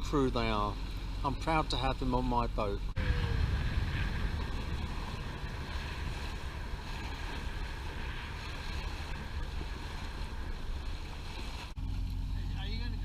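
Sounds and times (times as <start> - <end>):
heavy low rumble: 0.0 - 13.0
water rushing along boat hull: 0.0 - 13.0
wind buffeting microphone: 2.8 - 11.8.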